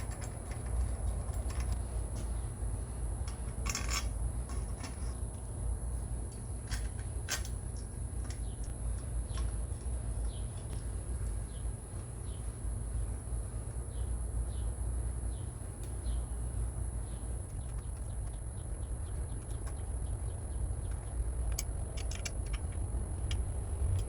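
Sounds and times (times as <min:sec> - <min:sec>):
steady low rumble: 0:00.0 - 0:24.0
sharp clicks: 0:20.8 - 0:24.0.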